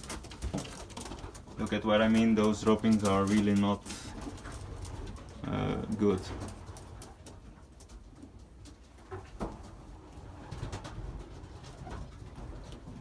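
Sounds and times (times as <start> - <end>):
pigeons cooing: 0.9 - 7.6.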